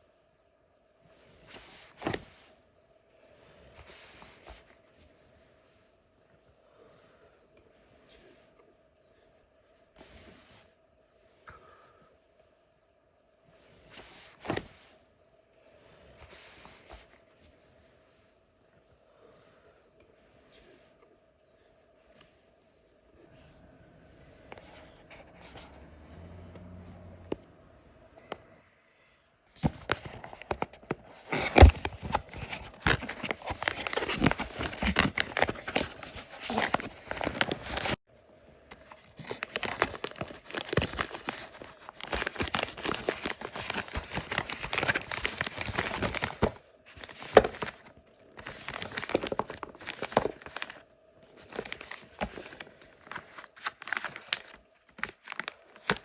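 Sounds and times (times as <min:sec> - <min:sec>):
packaging rustling and tearing: 0:29.6 - 0:38.0, 0:38.7 - 0:56.0.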